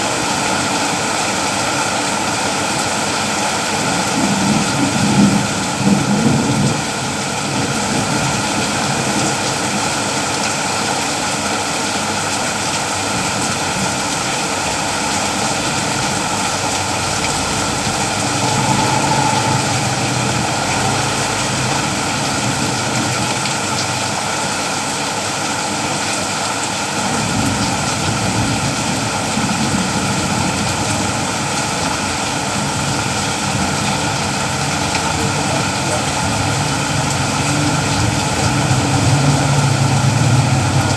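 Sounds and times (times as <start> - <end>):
steady rain falling: 0.0 - 40.9
low rumble: 14.6 - 24.2.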